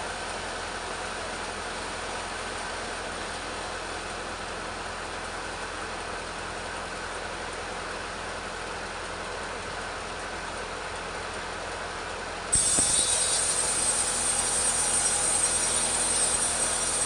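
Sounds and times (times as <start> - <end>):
chainsaw cutting log: 12.6 - 17.0.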